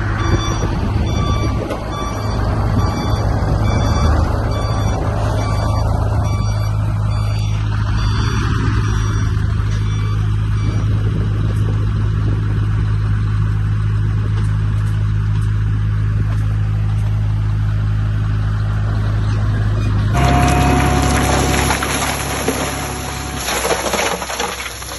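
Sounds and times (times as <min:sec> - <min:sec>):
heavy machinery diesel engine: 0:00.0 - 0:24.9
faint reversing beeper: 0:00.2 - 0:10.9, 0:20.2 - 0:23.8.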